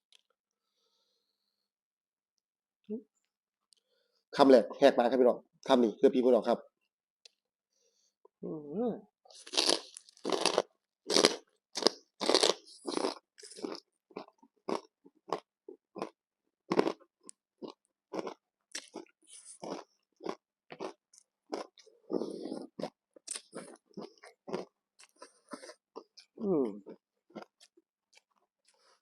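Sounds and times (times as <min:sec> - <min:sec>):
person chewing crunchy food: 0:09.3 - 0:29.0.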